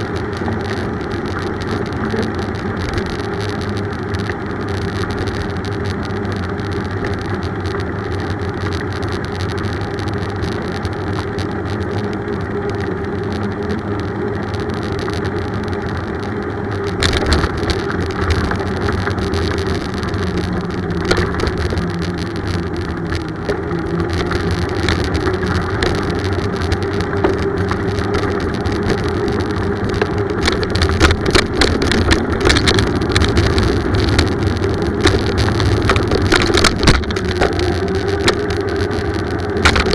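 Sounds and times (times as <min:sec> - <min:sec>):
bicycle tyre and wind noise: 0:00.0 - 0:39.9
bicycle knocks and rattles: 0:14.6 - 0:39.9.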